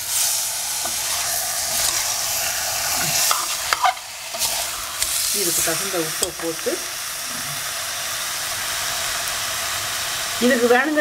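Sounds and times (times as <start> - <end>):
chicken sizzling in pressure cooker: 0.0 - 11.0
steel ladle stirring: 0.8 - 5.3.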